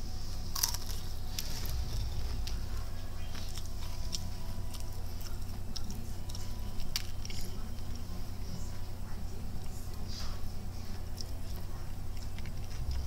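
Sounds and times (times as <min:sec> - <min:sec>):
steady low hum: 0:00.0 - 0:13.0
person chewing: 0:00.5 - 0:08.1, 0:10.9 - 0:13.0.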